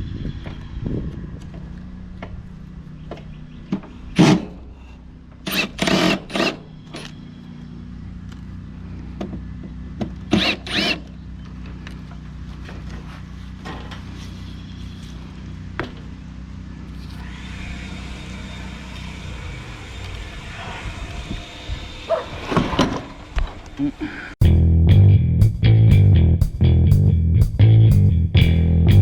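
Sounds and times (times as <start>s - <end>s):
power drill bursts: 5.4s - 7.4s, 10.3s - 11.1s, 17.2s - 23.4s
steady low hum: 24.4s - 29.0s.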